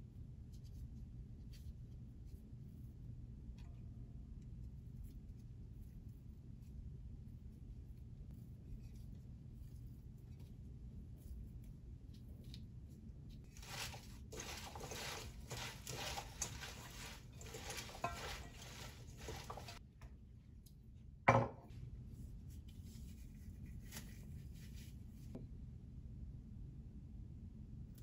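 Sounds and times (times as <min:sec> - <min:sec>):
utensils and dishes tapping: 0:13.7 - 0:19.8.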